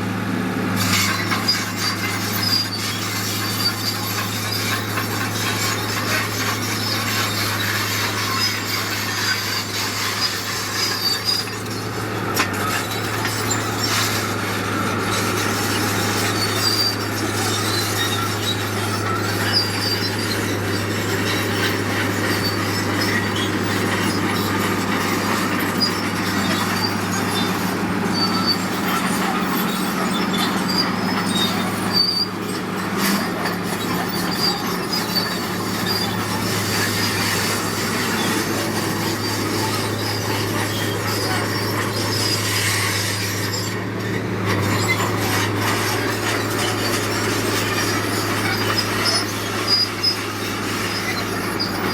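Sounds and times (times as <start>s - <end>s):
diesel engine under load: 0.0s - 51.9s
crawler tracks squeaking: 0.1s - 51.9s.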